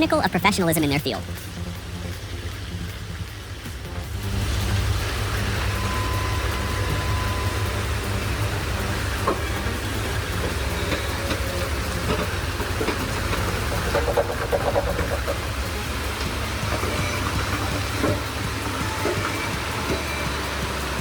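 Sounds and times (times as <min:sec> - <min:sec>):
heavy vehicle engine rumble: 0:00.0 - 0:21.0
road and wind noise: 0:00.0 - 0:21.0
thin whistle: 0:05.3 - 0:11.8.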